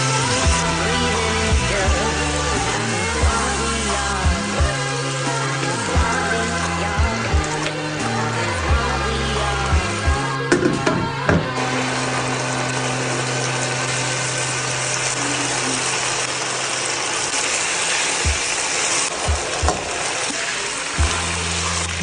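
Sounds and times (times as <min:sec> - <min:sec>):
food sizzling in a frying pan: 0:00.0 - 0:10.1, 0:11.6 - 0:22.0.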